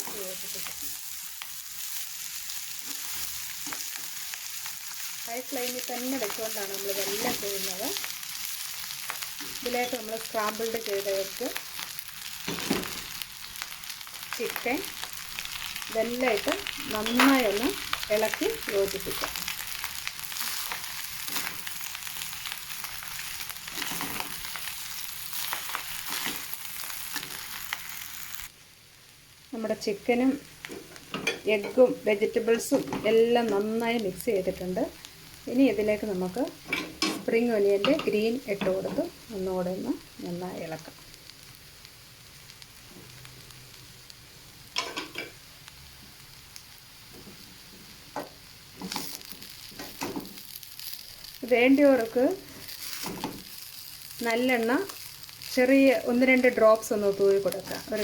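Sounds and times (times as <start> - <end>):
rice sizzling in a pan: 0.0 - 58.0
stirring clicks and scrapes on pan: 15.4 - 28.0, 47.1 - 51.4, 52.4 - 54.1
spatula scraping a pan: 23.2 - 24.5.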